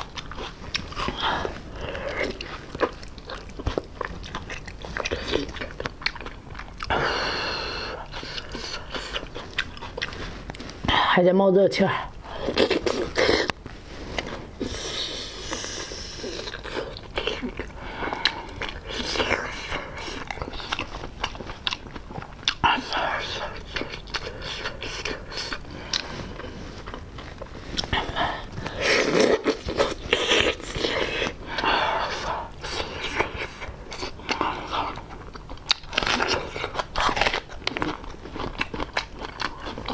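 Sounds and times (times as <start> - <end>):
person chewing and crunching food: 0.0 - 11.2, 11.8 - 39.9
person breathing while eating: 0.9 - 2.7, 6.8 - 9.4, 12.2 - 20.8, 22.5 - 35.1.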